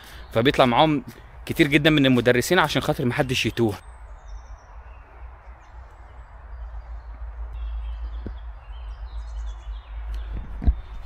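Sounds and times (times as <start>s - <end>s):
small birds chirping: 0.0s - 11.0s
steady low rumble: 3.8s - 11.0s.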